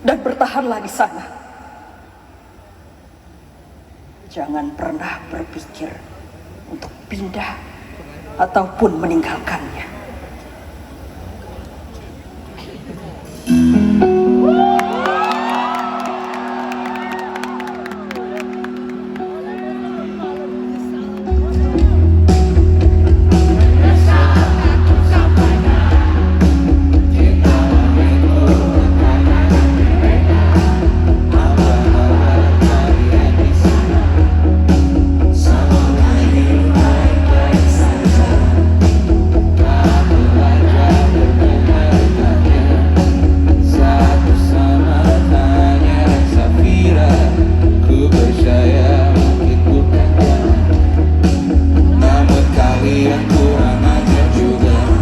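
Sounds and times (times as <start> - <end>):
pop-rock band playing: 13.4 - 55.0
booming bass: 21.8 - 55.0
person singing: 23.3 - 55.0.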